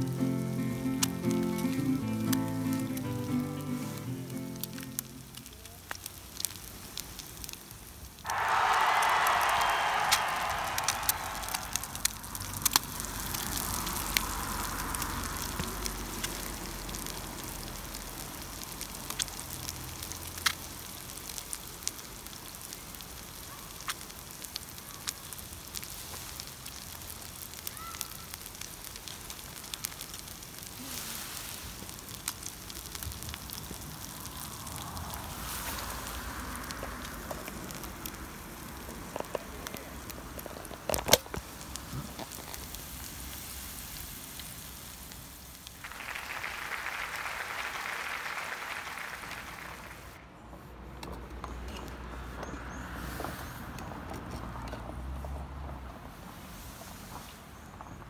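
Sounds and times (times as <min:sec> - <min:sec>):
eggs and sausages sizzling: 0:00.0 - 0:08.3, 0:10.4 - 0:48.2.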